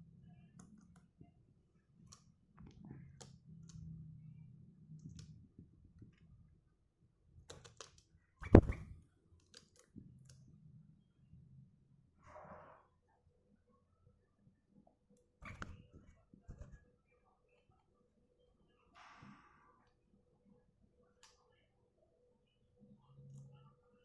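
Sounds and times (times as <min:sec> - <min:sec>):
bird pecking clicks and taps: 0:02.1 - 0:03.8, 0:07.4 - 0:08.7.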